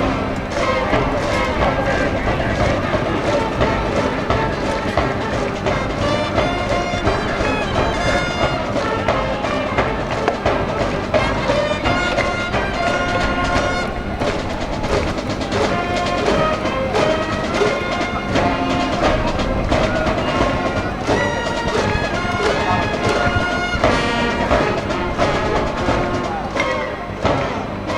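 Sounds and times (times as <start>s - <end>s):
brass band playing: 0.0s - 27.9s
steady drum beat: 0.0s - 27.9s.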